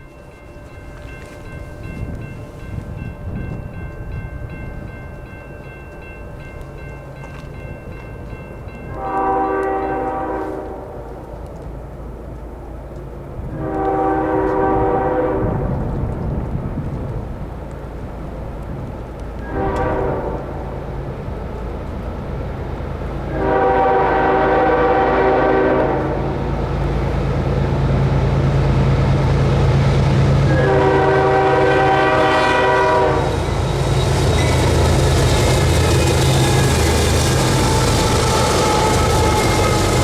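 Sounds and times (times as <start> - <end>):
train rumbling: 0.0 - 40.0
locomotive air horn blasts: 8.9 - 11.4, 13.5 - 15.7, 19.4 - 20.8, 23.3 - 26.5, 30.4 - 33.5.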